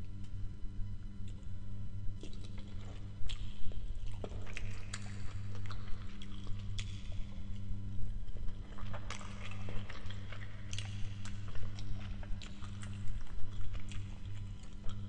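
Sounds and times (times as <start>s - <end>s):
steady low hum: 0.0s - 15.0s
wet mouth chewing sounds: 2.2s - 15.0s.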